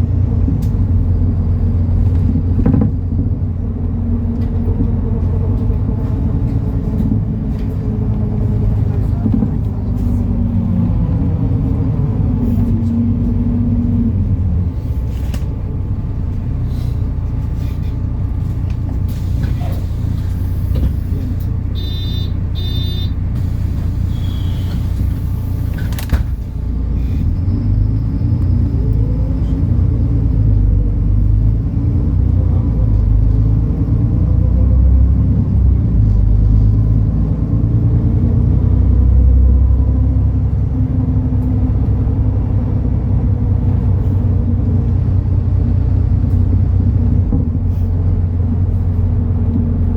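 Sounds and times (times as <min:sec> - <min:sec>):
bus diesel engine rumbling: 0:00.0 - 0:49.9
short electronic beeps: 0:21.7 - 0:23.2.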